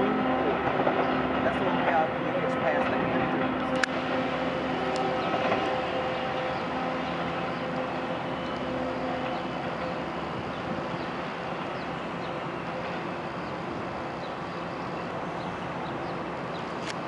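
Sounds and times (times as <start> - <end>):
diesel engine hum: 0.0 - 17.0
train wheels rumbling: 0.0 - 17.0.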